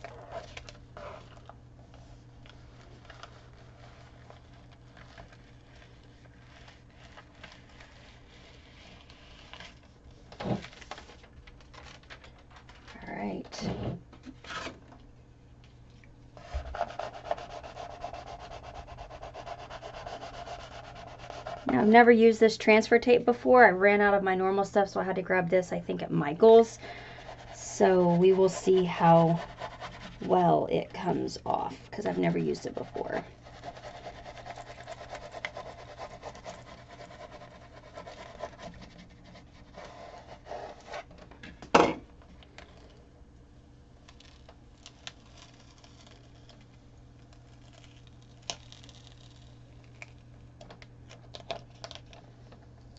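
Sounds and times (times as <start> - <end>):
scraper rubbing on canvas: 2.0 - 10.0, 16.4 - 21.8, 27.2 - 30.4, 32.0 - 41.1.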